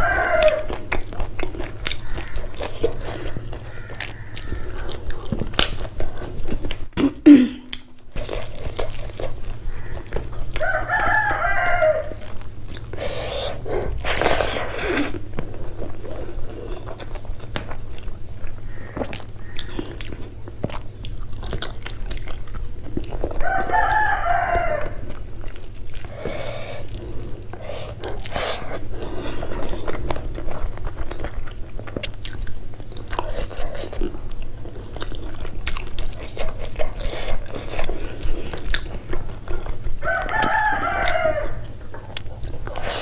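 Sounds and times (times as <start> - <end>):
rooster crowing: 0.0 - 0.9, 9.7 - 12.3, 23.4 - 25.2, 40.0 - 41.7
person chewing: 0.0 - 43.0.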